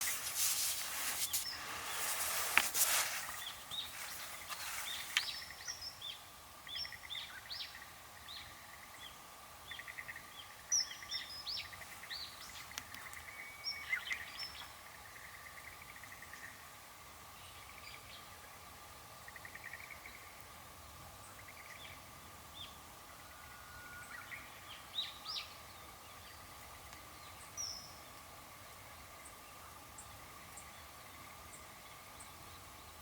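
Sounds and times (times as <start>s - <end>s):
rushing hiss: 0.0s - 5.5s
birds chirping and trilling: 0.0s - 16.4s
faint steady tone: 0.1s - 33.0s.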